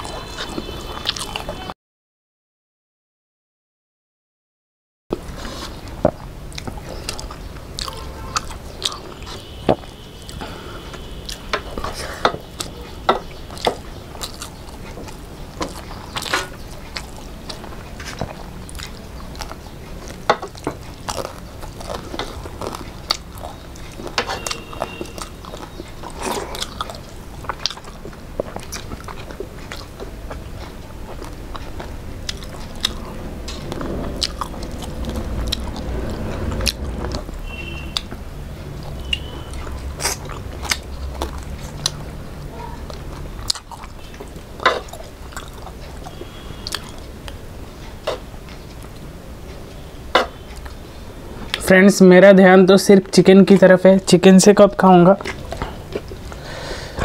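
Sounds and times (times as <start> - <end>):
chewing and crunching: 0.0 - 1.7, 5.1 - 51.6, 55.2 - 57.0.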